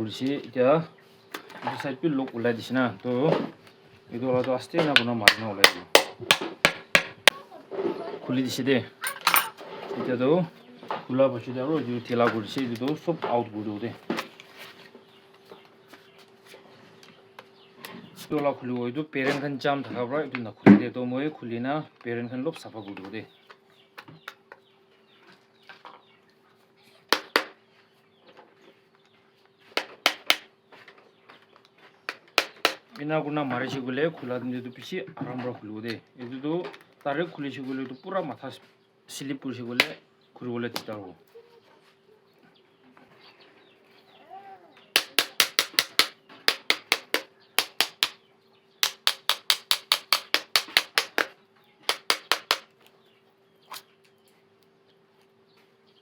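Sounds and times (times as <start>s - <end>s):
hammer tapping on metal: 5.0s - 7.4s, 45.0s - 48.2s, 48.8s - 51.3s, 51.9s - 52.7s
sharp knocks on metal: 5.0s - 7.4s, 27.1s - 27.6s, 29.8s - 30.5s, 32.1s - 32.8s, 45.0s - 48.2s, 48.8s - 51.3s, 51.9s - 52.7s.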